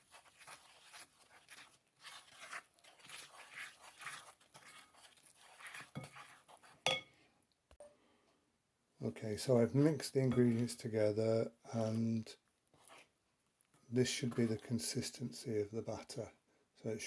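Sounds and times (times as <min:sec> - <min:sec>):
spoon beating batter in bowl: 0:00.0 - 0:07.3, 0:09.8 - 0:11.1, 0:11.8 - 0:15.4
spoon knocking bowl: 0:06.9 - 0:07.1.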